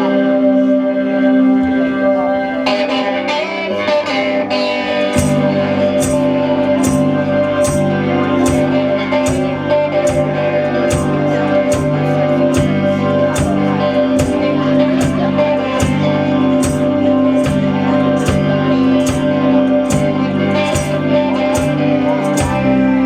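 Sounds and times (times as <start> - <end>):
electric guitar: 0.0 - 23.0
live rock band playing: 0.0 - 23.0.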